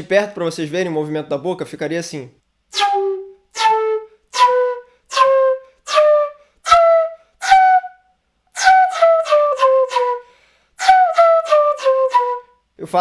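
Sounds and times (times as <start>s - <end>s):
breathy flute notes: 2.7s - 12.6s.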